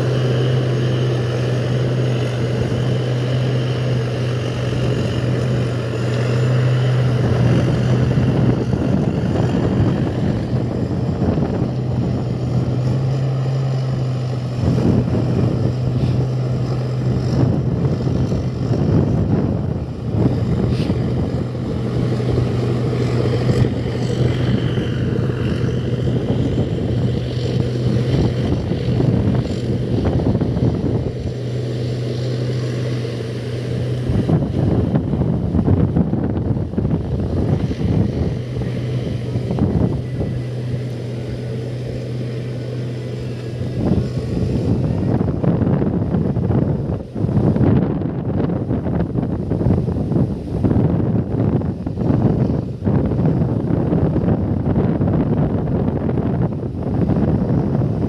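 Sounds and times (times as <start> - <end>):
rushing airy noise: 0.0 - 54.9.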